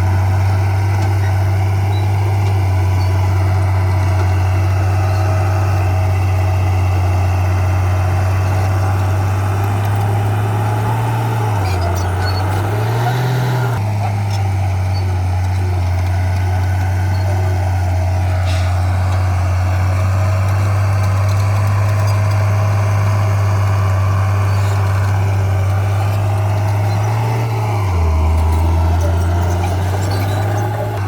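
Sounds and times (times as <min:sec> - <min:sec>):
heavy diesel engine droning: 0:00.0 - 0:31.0.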